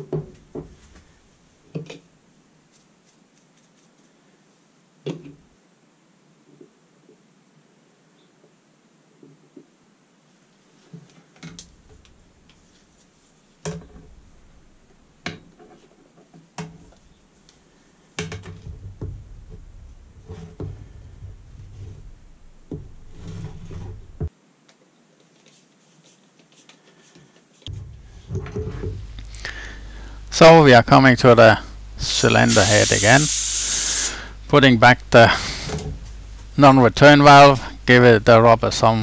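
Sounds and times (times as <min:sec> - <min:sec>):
low handling rumble: 0:13.9 - 0:15.2, 0:18.6 - 0:24.3, 0:27.7 - 0:32.3, 0:34.3 - 0:39.0.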